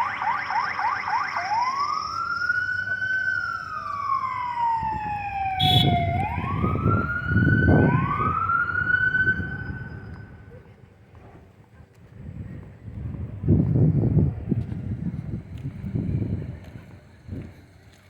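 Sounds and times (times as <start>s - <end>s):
emergency siren wailing: 0.0s - 10.6s.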